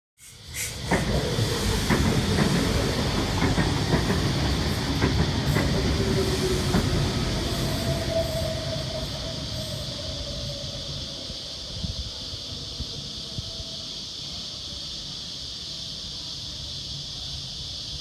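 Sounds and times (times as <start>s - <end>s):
electric train running: 0.2s - 11.8s
wheels clicking over rail joints: 0.8s - 6.9s
thin steady squeal: 5.5s - 14.5s.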